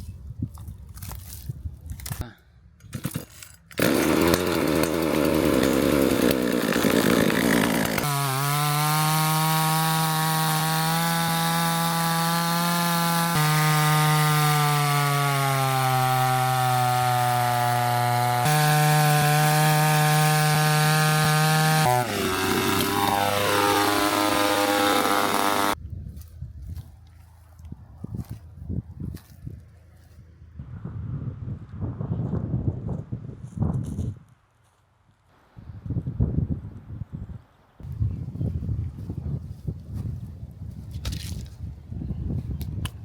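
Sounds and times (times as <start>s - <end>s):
chainsaw cutting wood: 2.9s - 25.8s
chainsaw running at high revs: 3.8s - 25.8s.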